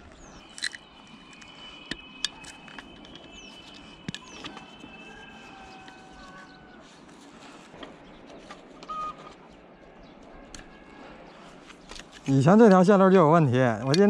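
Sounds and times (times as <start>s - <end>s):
faint steady high tone: 0.0s - 6.8s
quiet village background: 0.0s - 14.0s.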